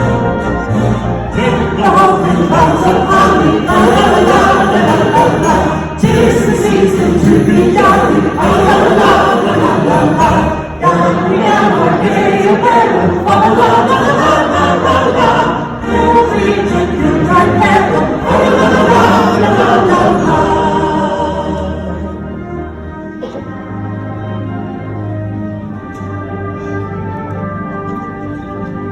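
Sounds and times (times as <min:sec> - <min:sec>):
audience singing a carol: 0:00.0 - 0:23.5
concert band accompanying: 0:00.0 - 0:28.9.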